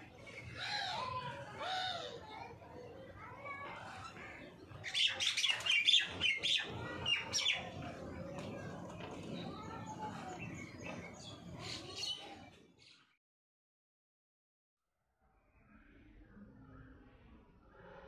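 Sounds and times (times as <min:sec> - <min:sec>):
small birds chirping: 0:00.0 - 0:13.1.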